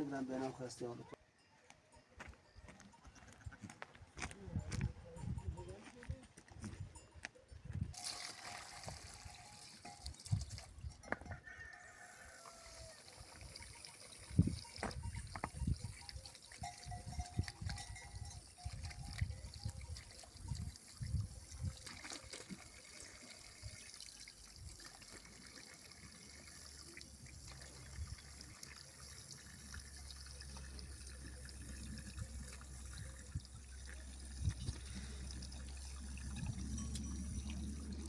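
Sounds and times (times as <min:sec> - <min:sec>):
water trickling: 0:07.9 - 0:38.0.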